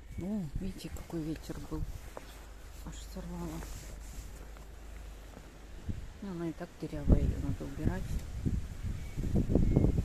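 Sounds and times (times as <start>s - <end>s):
wind buffeting microphone: 0.0s - 2.2s, 5.6s - 10.0s.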